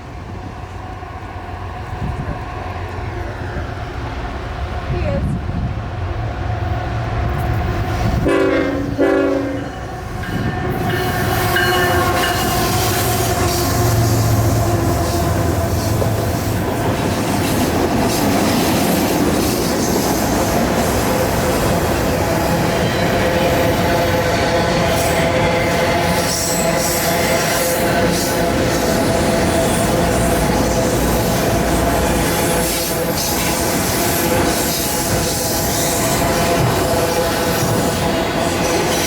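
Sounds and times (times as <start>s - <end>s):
train rolling past: 0.0s - 39.0s
wheels clattering on rail: 7.2s - 39.0s
train horn blasts: 8.2s - 16.5s, 22.0s - 38.6s.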